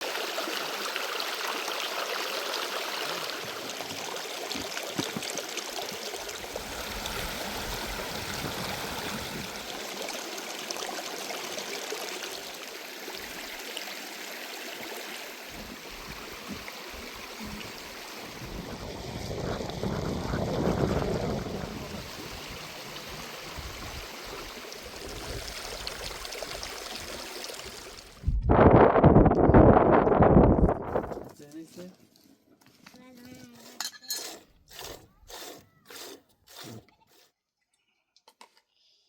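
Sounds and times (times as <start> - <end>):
water flowing: 0.0 - 28.2.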